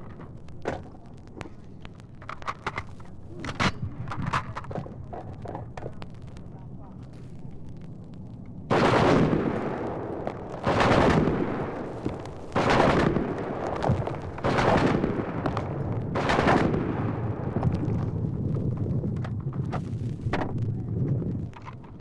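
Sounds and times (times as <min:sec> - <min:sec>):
loud gunfire blasts with echo: 0:08.7 - 0:18.3.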